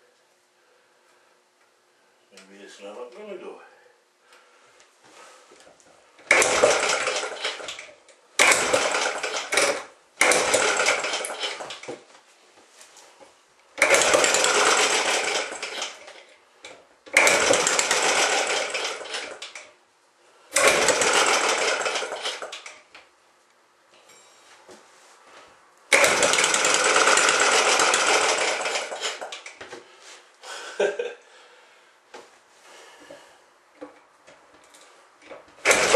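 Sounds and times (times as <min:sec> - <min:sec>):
small gasoline engine cranking: 0:06.2 - 0:11.9, 0:13.8 - 0:16.3, 0:17.1 - 0:19.7, 0:20.5 - 0:22.8, 0:25.9 - 0:29.6, 0:35.6 - 0:35.9.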